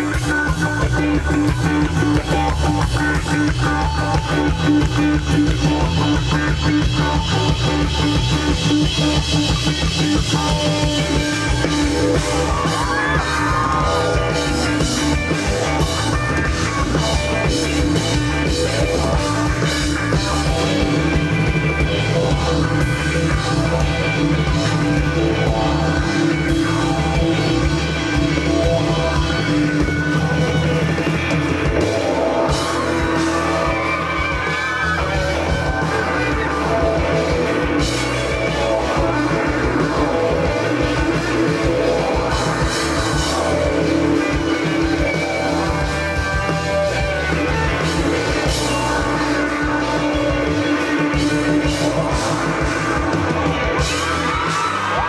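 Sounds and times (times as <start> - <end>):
bass guitar: 0.0 - 55.0
drum kit: 0.0 - 55.0
electric guitar bending notes: 0.0 - 55.0.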